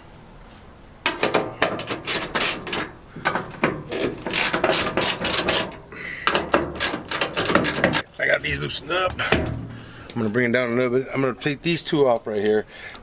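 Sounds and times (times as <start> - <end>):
hand ratchet clicking: 1.2 - 8.1.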